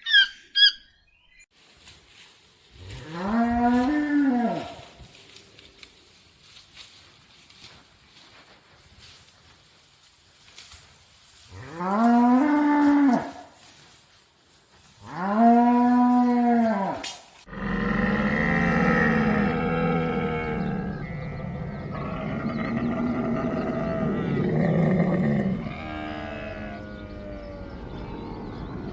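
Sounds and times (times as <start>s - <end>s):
cow mooing: 2.9s - 4.8s, 15.1s - 28.3s.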